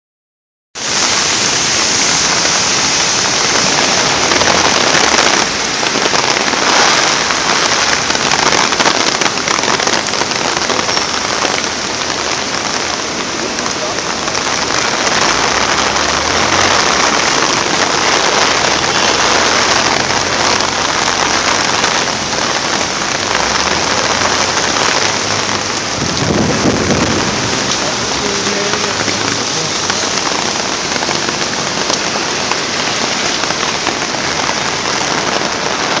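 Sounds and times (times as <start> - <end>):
heavy rain pouring: 0.8 - 36.0
water rushing: 0.8 - 36.0
low rumble: 23.2 - 29.5.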